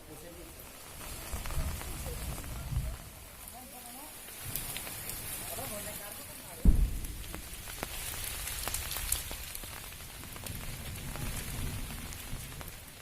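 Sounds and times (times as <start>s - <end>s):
rain falling: 0.0s - 13.0s
loud low thump: 6.6s - 7.8s
low rumble: 6.6s - 8.9s.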